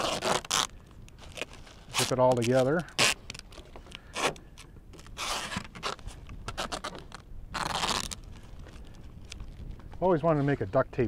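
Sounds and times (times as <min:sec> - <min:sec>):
duct tape ripping off roll: 0:00.0 - 0:04.4, 0:05.0 - 0:08.3
handling crackles and clicks: 0:00.4 - 0:10.0.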